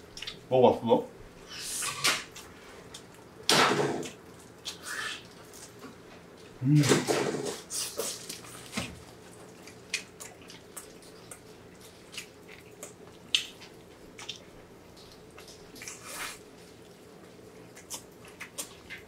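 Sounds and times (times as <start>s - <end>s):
wet chewing and lip smacks: 0.1s - 0.4s, 4.0s - 6.6s, 7.6s - 19.0s.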